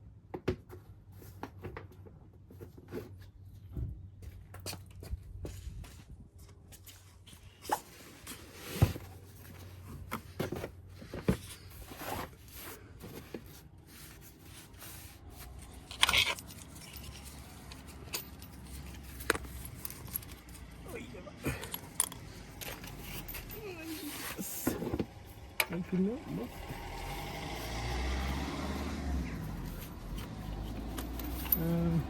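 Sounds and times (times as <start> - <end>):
metal tools clicking and scraping: 15.4 - 20.8, 21.5 - 24.7, 29.6 - 32.0
tools clattering: 15.4 - 20.8, 21.5 - 25.8, 29.6 - 32.0.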